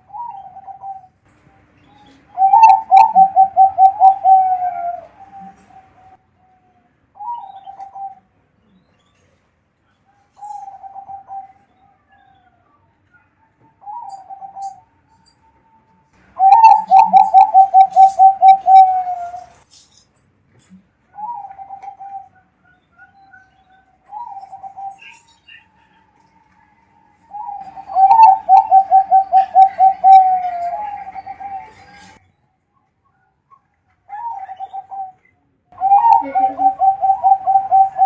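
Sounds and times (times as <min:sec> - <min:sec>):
dove cooing in trilled notes: 0:00.0 - 0:01.1, 0:02.4 - 0:06.2, 0:07.2 - 0:08.2, 0:10.4 - 0:11.6, 0:13.8 - 0:14.8, 0:16.4 - 0:19.5, 0:21.2 - 0:22.3, 0:24.1 - 0:25.2, 0:27.3 - 0:31.8, 0:34.1 - 0:35.2, 0:35.8 - 0:38.0.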